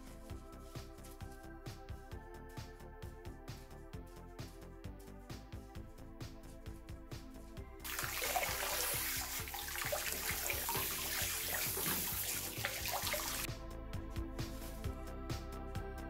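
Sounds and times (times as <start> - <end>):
background music with beat: 0.0 - 16.0
water spraying and splashing: 7.8 - 13.5.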